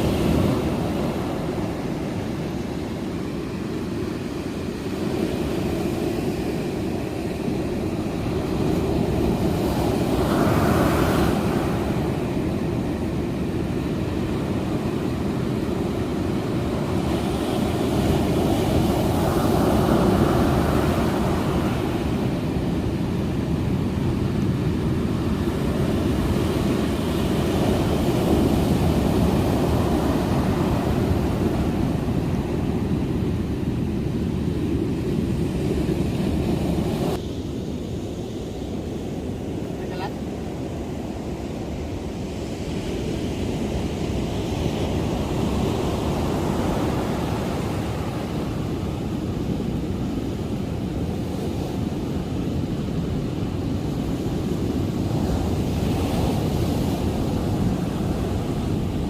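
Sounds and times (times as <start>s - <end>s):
ocean surf: 0.0s - 59.0s
wind buffeting microphone: 0.0s - 59.0s.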